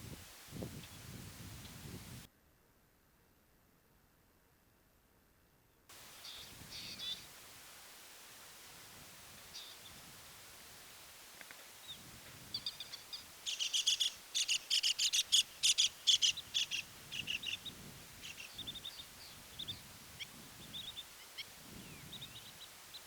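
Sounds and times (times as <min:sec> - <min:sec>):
birds chirping: 0:06.0 - 0:07.3, 0:09.4 - 0:10.2, 0:11.5 - 0:23.0.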